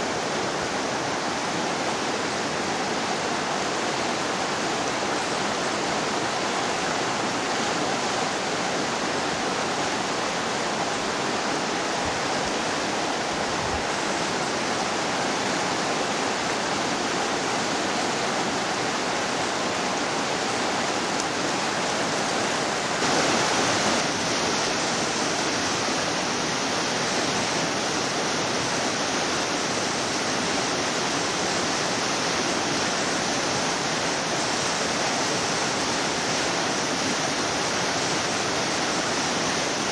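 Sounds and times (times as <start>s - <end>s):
river rapids rushing: 0.0s - 39.9s.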